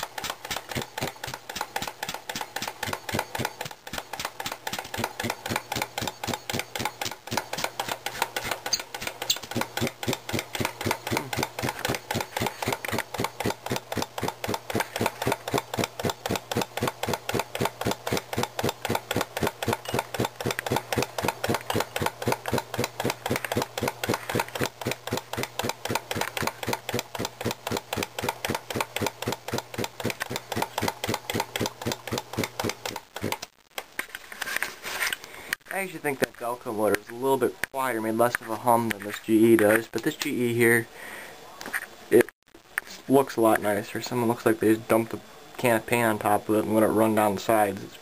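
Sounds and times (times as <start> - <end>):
air compressor chugging: 0.0 - 33.5
electric motor hum: 0.0 - 33.5.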